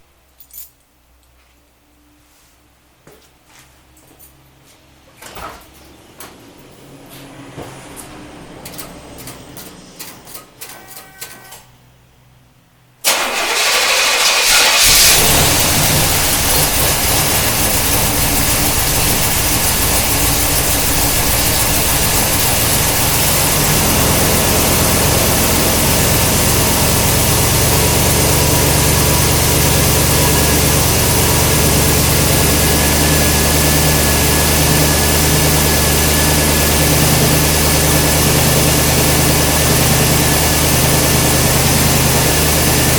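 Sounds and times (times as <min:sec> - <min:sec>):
car engine idling: 0:06.5 - 0:11.6, 0:13.0 - 0:42.9
car engine cranking: 0:08.5 - 0:11.7, 0:13.0 - 0:39.9.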